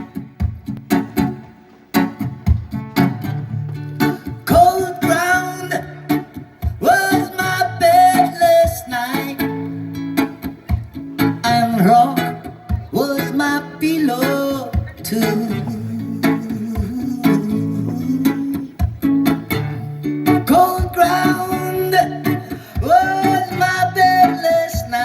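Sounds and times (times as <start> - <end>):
acoustic guitar strumming: 0.0 - 25.0
person singing wordless notes: 11.4 - 18.8.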